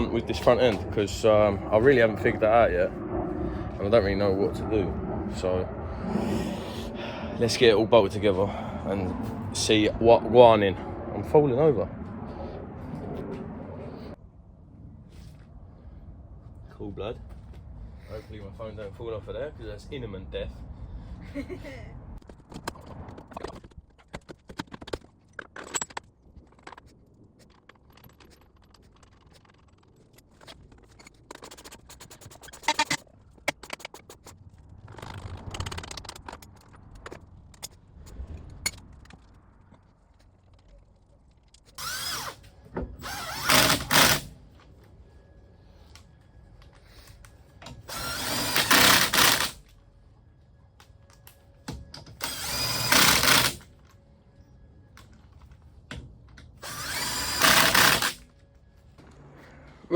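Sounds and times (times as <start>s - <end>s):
power tool bursts: 41.8s - 42.4s, 43.0s - 44.3s, 47.9s - 49.6s, 52.2s - 53.6s, 56.6s - 58.2s.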